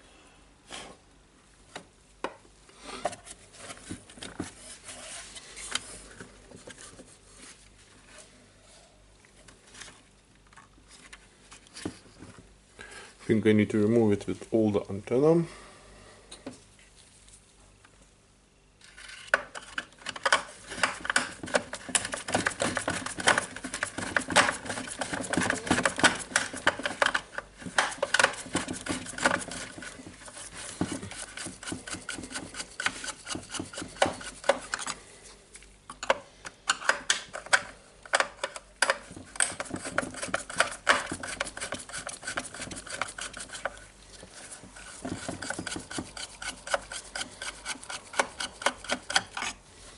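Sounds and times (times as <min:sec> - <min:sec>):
plastic parts clicking and scraping: 0:18.8 - 0:35.0, 0:35.9 - 0:49.6.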